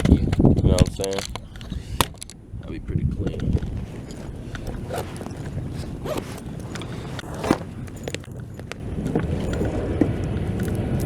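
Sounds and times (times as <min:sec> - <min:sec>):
gear handling clicks and scrapes: 0:00.0 - 0:02.4, 0:03.1 - 0:11.0
zipper-like rasp: 0:03.7 - 0:09.8.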